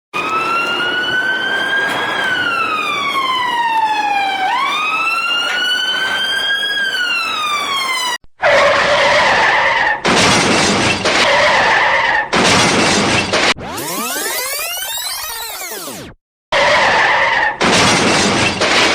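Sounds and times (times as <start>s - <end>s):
police siren wailing: 0.1s - 10.0s, 13.6s - 16.0s, 16.6s - 17.6s.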